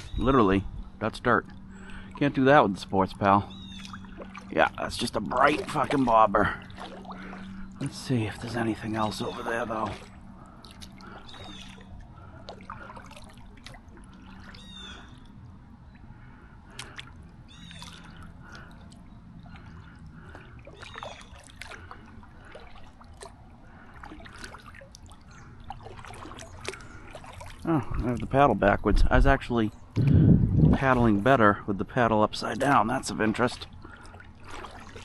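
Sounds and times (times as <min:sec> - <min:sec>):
water dripping from paddle: 0:01.4 - 0:02.4, 0:03.1 - 0:28.4, 0:33.3 - 0:35.0
paddle splashing in water: 0:03.5 - 0:15.4, 0:16.2 - 0:28.3, 0:32.5 - 0:35.0.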